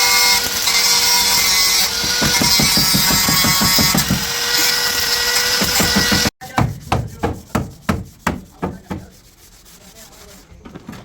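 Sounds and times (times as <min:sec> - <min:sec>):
sanding strokes on car bodywork: 0:05.6 - 0:10.6.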